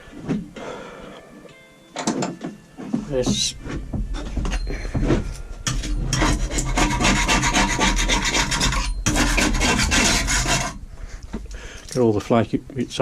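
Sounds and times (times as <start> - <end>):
tool scraping paint off metal: 5.7 - 10.8.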